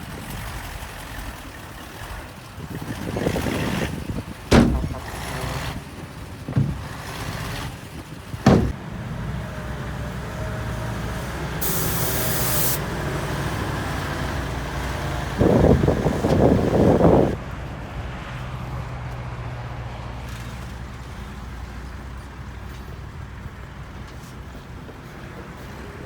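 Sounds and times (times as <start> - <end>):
diesel machinery running: 0.0 - 18.8
sharp knocks: 4.5 - 5.4, 6.5 - 7.0, 8.4 - 8.8
loud rattling: 4.5 - 5.8, 6.4 - 7.4, 8.4 - 8.8
air brake hiss: 11.6 - 12.8.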